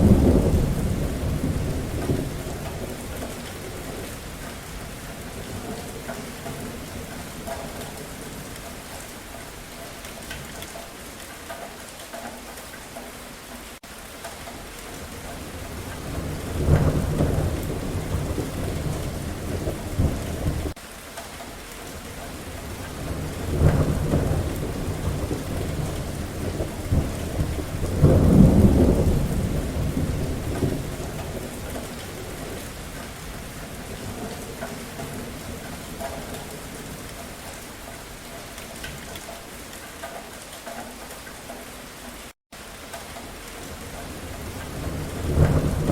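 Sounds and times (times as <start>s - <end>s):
rolling thunder: 0.0s - 8.6s, 15.0s - 20.8s, 22.3s - 37.5s, 43.7s - 45.9s
steady rain: 0.0s - 45.9s.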